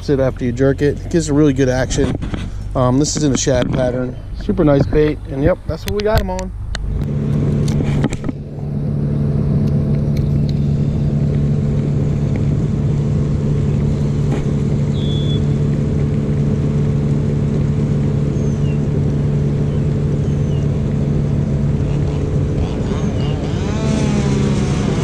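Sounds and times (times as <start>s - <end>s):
low rumbling: 0.0s - 25.0s
loud motor hum: 6.6s - 25.0s.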